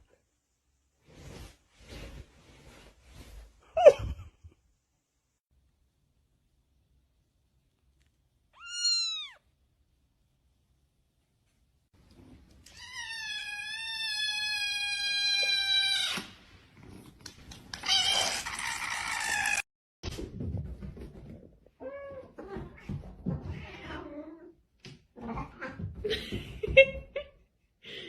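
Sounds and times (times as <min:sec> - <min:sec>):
cat meowing: 0:08.6 - 0:09.4.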